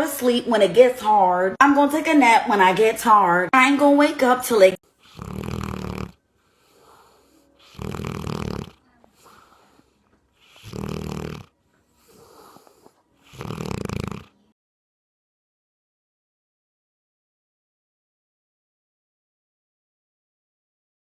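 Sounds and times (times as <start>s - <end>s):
dog snoring: 4.9s - 14.6s
dog breathing out: 5.0s - 14.4s.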